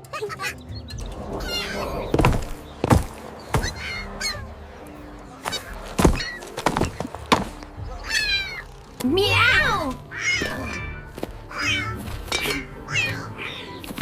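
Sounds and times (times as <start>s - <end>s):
faint steady background tones: 0.0s - 14.0s
knocks and thuds: 1.0s - 4.5s, 5.4s - 7.8s.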